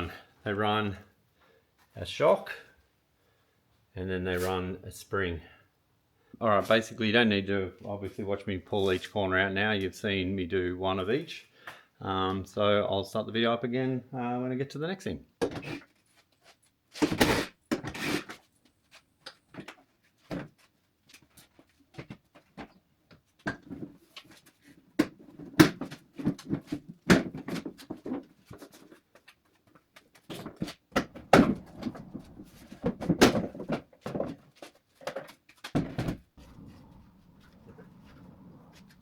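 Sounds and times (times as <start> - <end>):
knocks and clunks of car parts: 30.6 - 34.4, 35.7 - 36.7.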